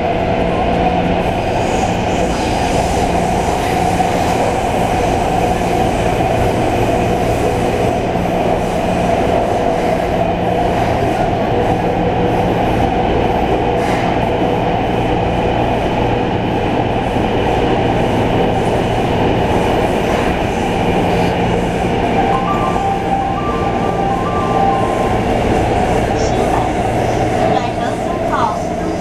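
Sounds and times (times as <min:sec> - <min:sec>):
train wheels rumbling on rail: 0:00.0 - 0:22.8, 0:24.2 - 0:29.0
short high tones: 0:22.2 - 0:26.8.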